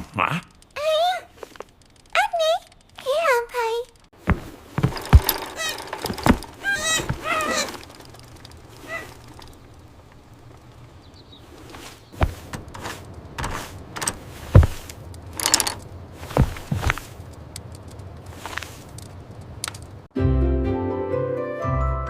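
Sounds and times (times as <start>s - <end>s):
knocks and thumps: 4.2s - 9.6s, 12.2s - 17.1s
rustling swishes: 11.3s - 17.4s, 18.2s - 19.3s.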